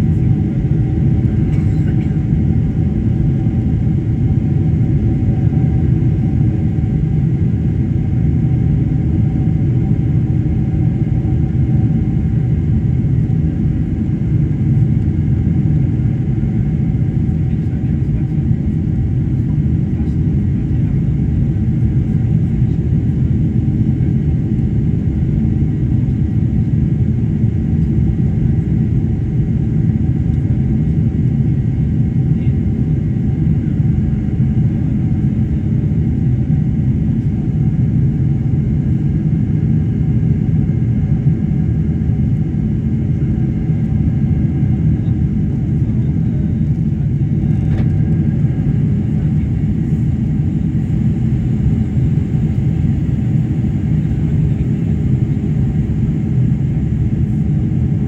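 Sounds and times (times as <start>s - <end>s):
airplane engine and airflow rumble: 0.0s - 58.0s
faint engine tones: 43.2s - 58.0s.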